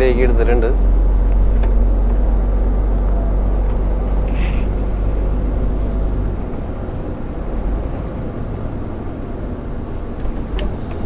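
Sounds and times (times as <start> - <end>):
truck engine and road rumble: 0.0 - 11.0
brief hiss: 4.3 - 4.8.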